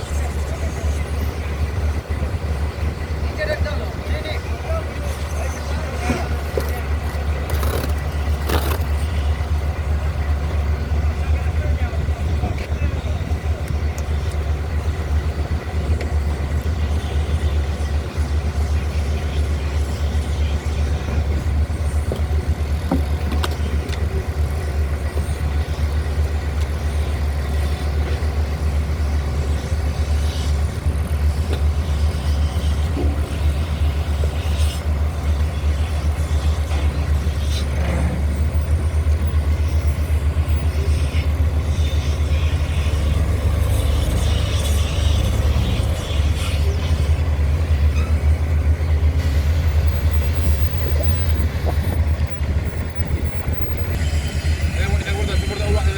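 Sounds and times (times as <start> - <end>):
engine idling: 0.0 - 55.9.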